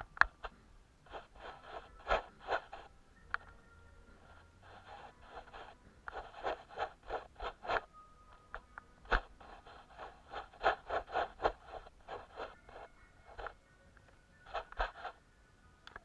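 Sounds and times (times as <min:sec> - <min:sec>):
short scratching strokes: 0:01.1 - 0:02.9, 0:04.2 - 0:07.9, 0:09.1 - 0:13.5.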